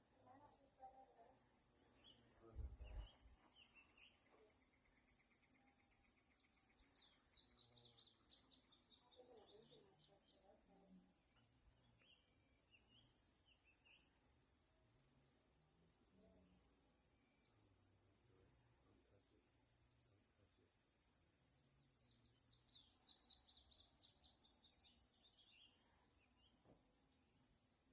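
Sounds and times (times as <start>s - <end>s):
crickets chirping: 0.0s - 27.9s
bird chirps: 1.9s - 10.4s, 22.0s - 26.6s.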